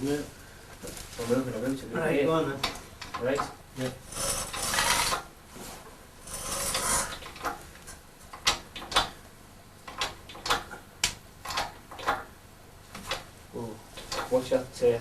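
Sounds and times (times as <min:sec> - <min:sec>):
metal scraping: 0:04.0 - 0:07.2
sharp metallic clicks and knocks: 0:08.3 - 0:09.2, 0:09.8 - 0:12.3.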